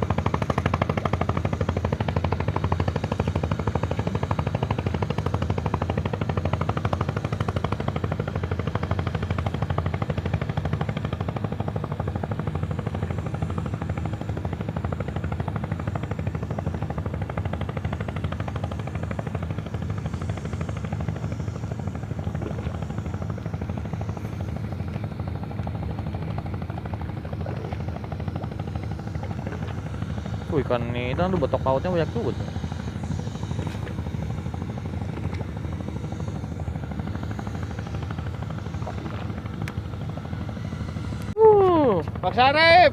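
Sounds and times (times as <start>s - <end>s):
boat engine chugging: 0.0s - 42.9s.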